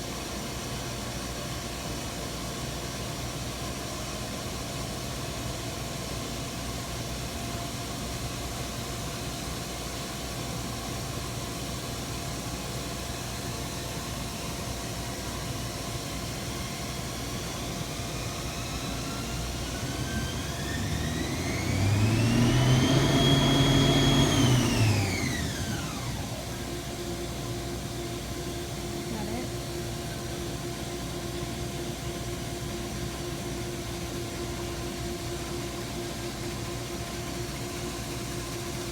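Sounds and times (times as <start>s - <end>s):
milling machine humming: 15.3s - 38.9s
spindle whine: 16.7s - 29.5s.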